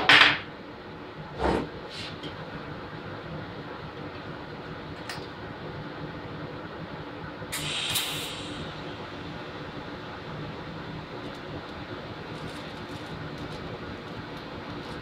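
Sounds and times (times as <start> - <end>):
welding arc hissing crackle: 7.5 - 15.0
welding machine hum: 7.5 - 15.0.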